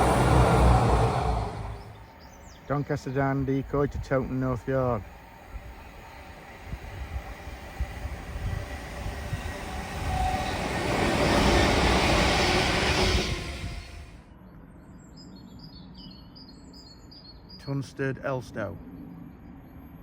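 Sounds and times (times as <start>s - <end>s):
freight train rumbling past: 0.0s - 14.2s.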